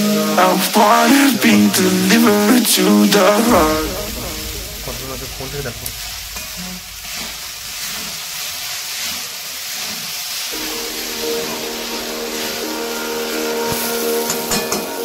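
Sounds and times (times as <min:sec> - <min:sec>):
background music: 0:00.0 - 0:06.1, 0:10.6 - 0:15.0
food sizzling in a pan: 0:00.0 - 0:15.0.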